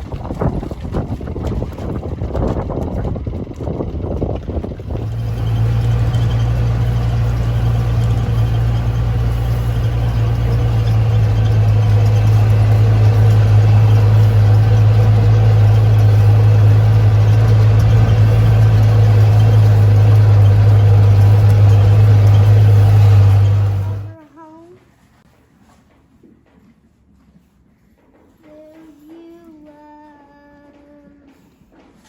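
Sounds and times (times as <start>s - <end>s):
engine humming: 0.0s - 24.2s.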